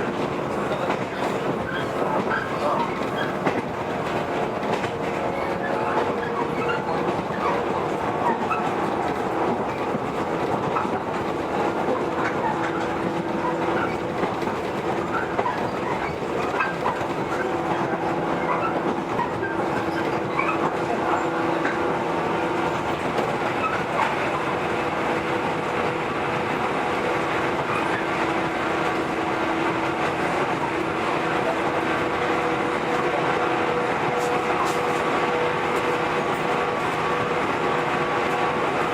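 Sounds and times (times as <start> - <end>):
track clicks and clacks: 0.0 - 38.9
train wheels rumbling on rail: 0.0 - 38.9.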